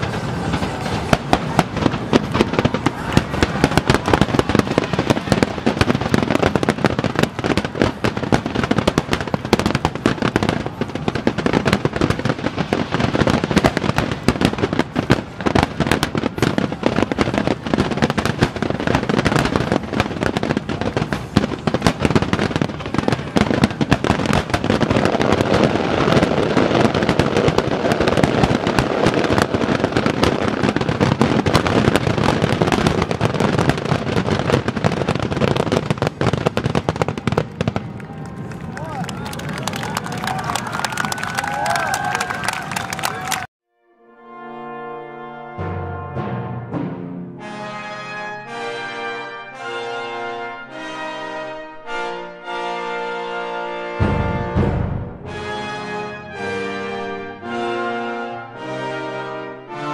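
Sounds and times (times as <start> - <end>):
fireworks bangs and crackle: 0.0 - 43.5, 53.8 - 57.6.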